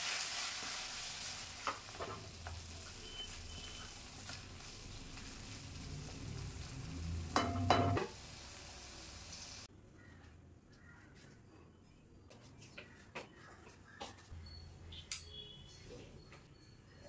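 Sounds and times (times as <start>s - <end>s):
vegetables sizzling in pan: 0.0s - 9.7s.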